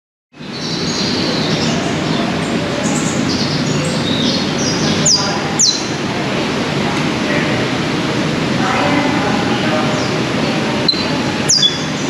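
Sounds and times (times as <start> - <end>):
many birds chirping: 0.4 - 12.0
steady rushing noise: 0.4 - 12.0.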